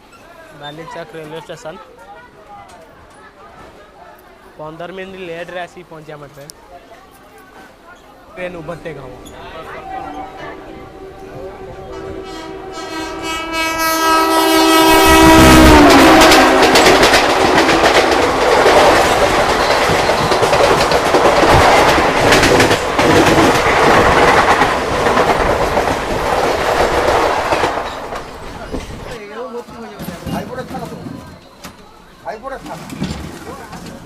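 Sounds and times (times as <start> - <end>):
train horn: 9.6 - 18.3
train wheels clattering over rails: 14.8 - 31.8, 32.4 - 34.0.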